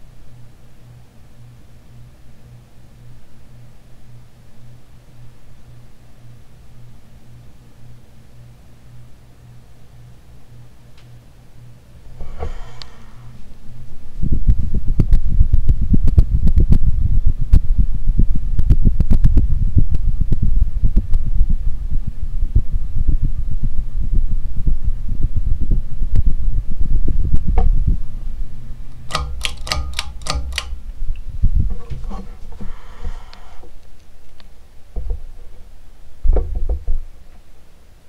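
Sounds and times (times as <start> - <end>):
ceiling fan rumbling with clicks: 0.0 - 38.0
sharp clicks: 28.9 - 30.9.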